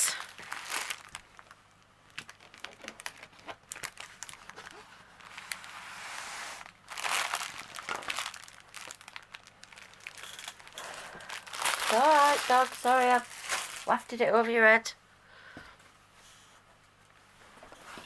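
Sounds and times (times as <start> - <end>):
plastic packaging crinkling: 0.0 - 14.2.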